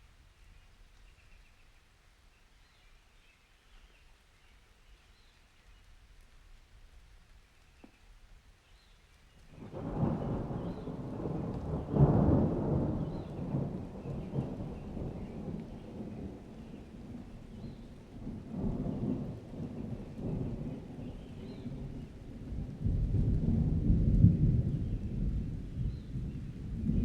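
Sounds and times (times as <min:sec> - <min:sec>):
rain: 0:00.0 - 0:27.0
thunder rumbling: 0:09.5 - 0:27.0.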